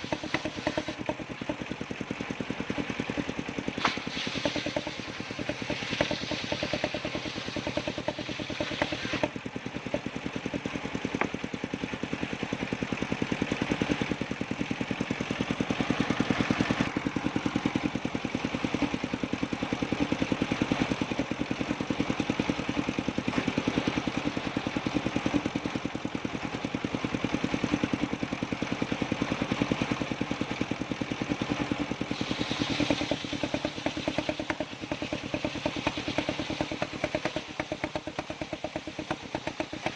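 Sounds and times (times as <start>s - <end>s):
saw blade rasping through wood: 0.0s - 1.6s, 3.8s - 10.1s, 31.4s - 39.9s
sawmill engine beat: 0.0s - 39.9s.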